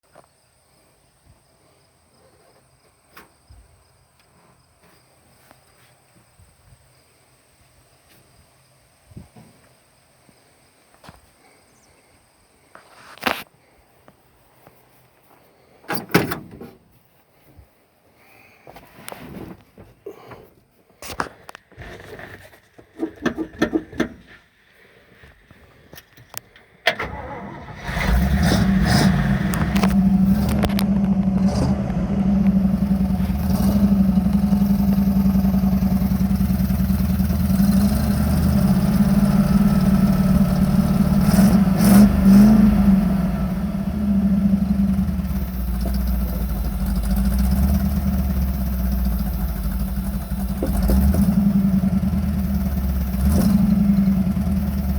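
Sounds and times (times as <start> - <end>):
engine cranking and running: 26.9 - 54.9.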